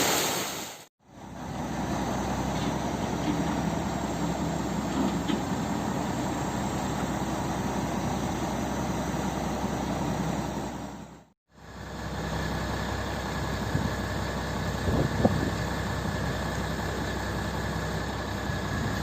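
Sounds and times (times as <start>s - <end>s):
diesel truck engine running: 1.0s - 19.0s.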